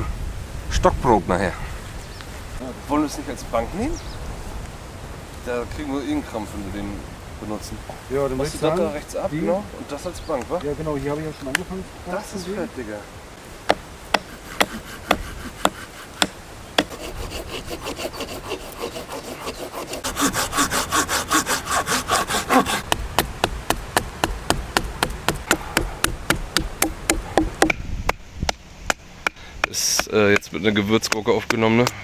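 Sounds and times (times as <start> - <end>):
hand saw cutting wood: 13.7 - 27.7.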